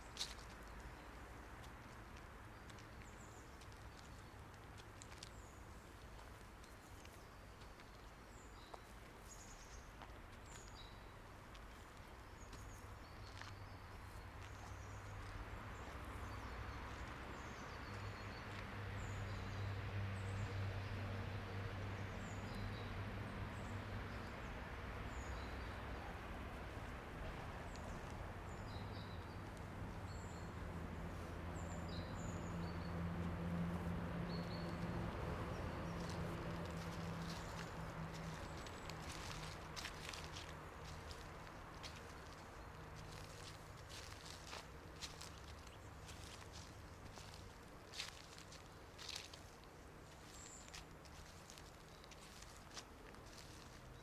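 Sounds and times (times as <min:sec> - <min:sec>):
small birds chirping: 0:22.1 - 0:54.0.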